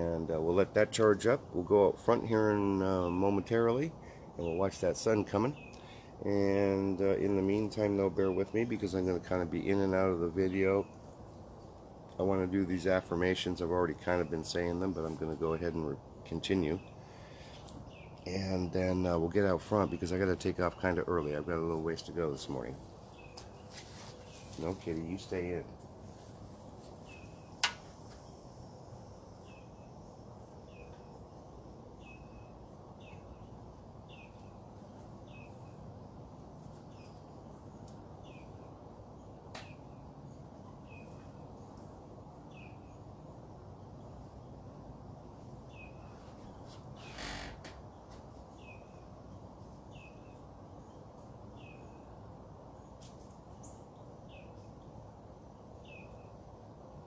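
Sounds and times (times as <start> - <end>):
low background hum: 0.0 - 57.0
bird chirping: 2.8 - 26.3, 26.9 - 35.9, 36.7 - 44.6, 45.4 - 56.5
rustling: 22.4 - 28.3
sharp click: 27.6 - 27.9.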